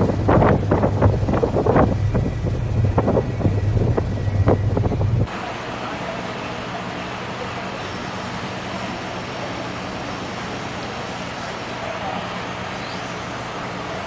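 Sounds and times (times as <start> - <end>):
tractor diesel engine knocking: 0.0 - 5.3
wind on microphone: 0.0 - 5.3.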